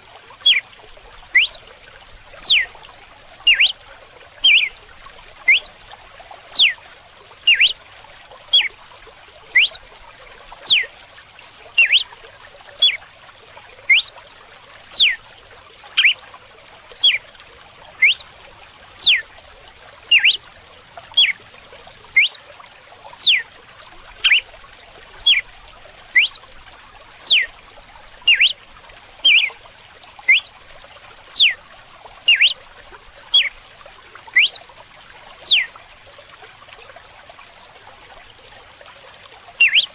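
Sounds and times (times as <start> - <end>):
water trickling: 0.0 - 39.9
bird whistling sharp notes: 0.4 - 0.6, 1.4 - 1.6, 2.4 - 2.7, 3.5 - 3.8, 4.4 - 4.7, 5.5 - 5.7, 6.5 - 6.8, 7.5 - 7.8, 9.6 - 9.8, 10.6 - 10.8, 11.8 - 12.1, 13.9 - 14.1, 14.9 - 15.2, 18.0 - 18.2, 19.0 - 19.2, 20.1 - 20.4, 22.2 - 22.4, 23.2 - 23.4, 26.2 - 26.4, 27.2 - 27.5, 28.3 - 28.6, 29.2 - 29.5, 30.3 - 30.5, 31.3 - 31.6, 32.3 - 32.6, 34.4 - 34.6, 35.4 - 35.7, 39.6 - 39.9.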